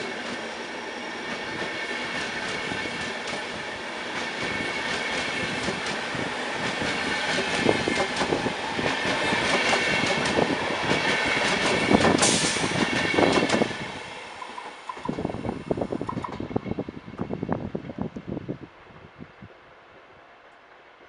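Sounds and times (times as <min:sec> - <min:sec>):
train rolling rumble: 0:00.0 - 0:21.0
train wheels clattering over joints: 0:04.1 - 0:13.7.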